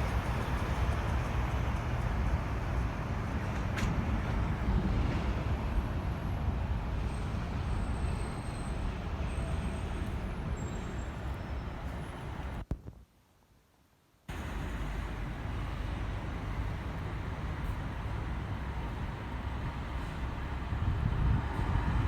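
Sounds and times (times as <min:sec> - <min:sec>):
low rumble of passing vehicles: 0:00.0 - 0:12.6, 0:14.3 - 0:22.0.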